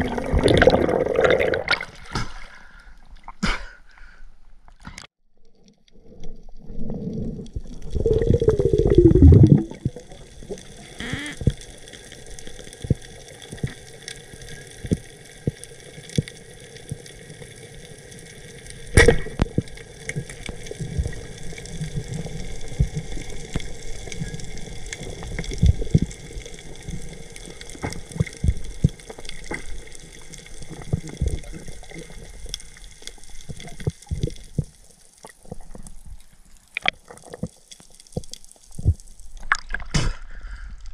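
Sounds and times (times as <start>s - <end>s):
water gurgling and sloshing: 0.0s - 3.4s, 5.4s - 11.7s, 18.9s - 40.9s.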